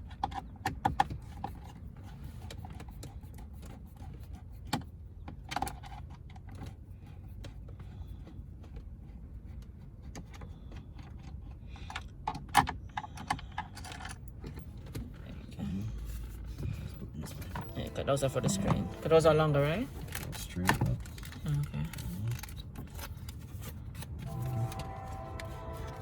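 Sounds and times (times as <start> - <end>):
steady low hum: 15.4 - 21.3, 24.2 - 26.0.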